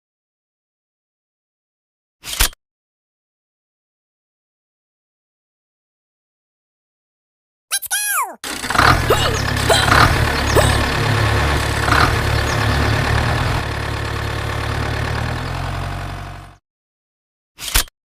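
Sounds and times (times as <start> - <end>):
heavy engine idling: 8.4 - 16.6
clanks and squeaks: 8.5 - 13.6.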